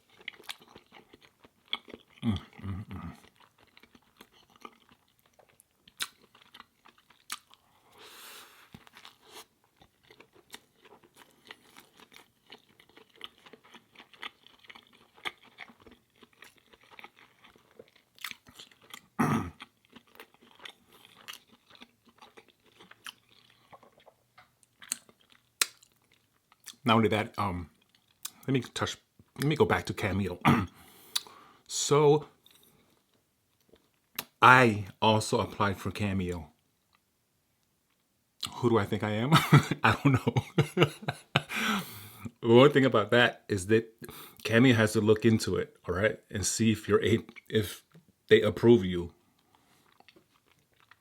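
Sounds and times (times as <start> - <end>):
person chewing and crunching: 0.0 - 26.8, 27.7 - 28.5, 30.5 - 31.4, 49.2 - 51.0
wet mouth clicks: 31.1 - 31.3.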